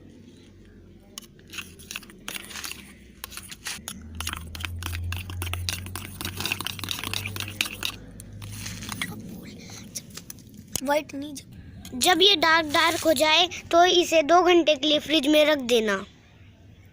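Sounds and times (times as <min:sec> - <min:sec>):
crunching clicks and scrapes: 0:00.4 - 0:10.9, 0:12.6 - 0:13.3
spoon stirring gritty slime: 0:01.1 - 0:10.5.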